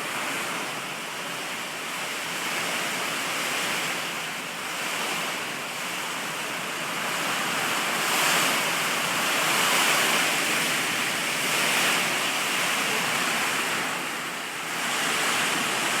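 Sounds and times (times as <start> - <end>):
heavy rain and wind: 0.0 - 16.0.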